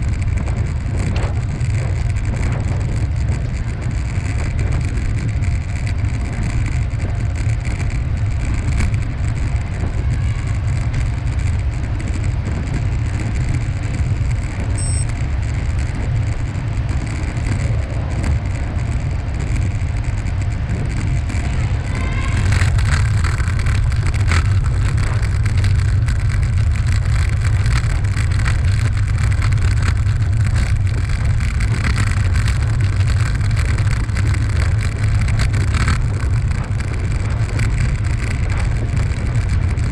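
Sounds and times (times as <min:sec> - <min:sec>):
road rolling noise: 0:00.0 - 0:39.9
wind rumble on microphone: 0:00.0 - 0:39.9
faint rattling ticks: 0:22.5 - 0:39.9.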